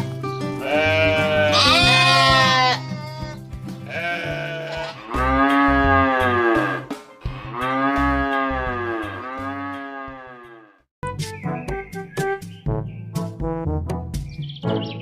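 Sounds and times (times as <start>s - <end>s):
background music low notes: 0.0s - 15.0s
farm animal bleating: 0.6s - 10.7s.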